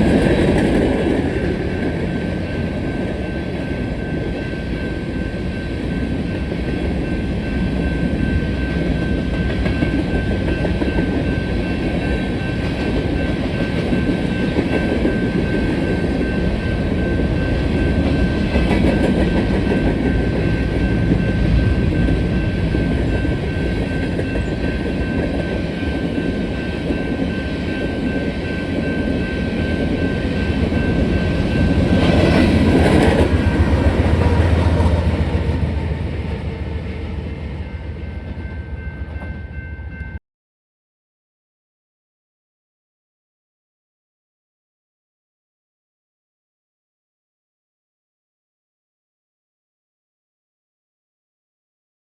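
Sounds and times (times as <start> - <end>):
wheels clickety-clack over rail joints: 0.0 - 4.8, 5.4 - 37.0
train wheels rumbling: 0.0 - 40.2.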